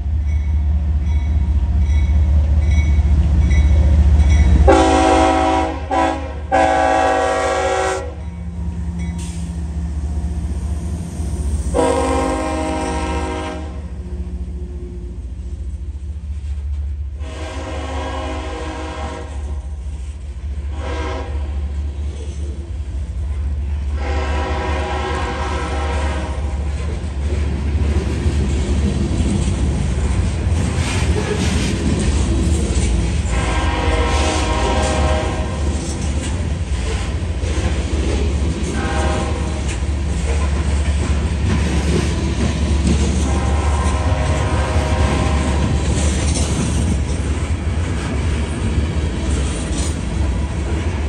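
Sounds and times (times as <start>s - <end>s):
locomotive horn blasts: 4.6s - 8.2s, 11.7s - 13.9s, 17.2s - 19.6s, 20.7s - 21.7s, 24.0s - 26.6s, 33.3s - 35.7s, 38.7s - 39.6s, 43.2s - 45.8s
freight cars rumbling and clattering: 26.4s - 33.7s, 34.6s - 51.0s.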